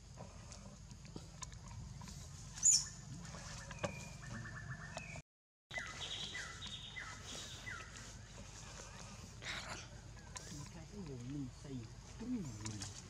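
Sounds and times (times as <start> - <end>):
bird trill: 2.6 - 3.0, 3.6 - 7.9
high bird chirp: 2.6 - 3.0, 3.6 - 8.0.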